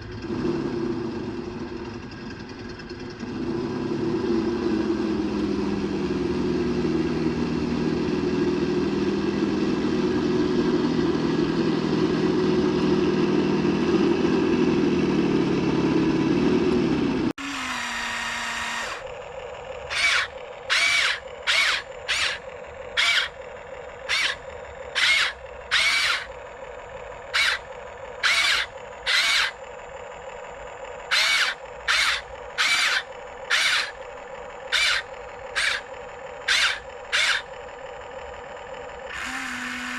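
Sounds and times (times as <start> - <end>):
toy truck motor whining: 17.3 - 39.9
shrill squawks: 19.9 - 22.4, 23.0 - 23.4, 24.0 - 26.3, 27.3 - 29.6, 31.1 - 34.0, 34.7 - 37.5.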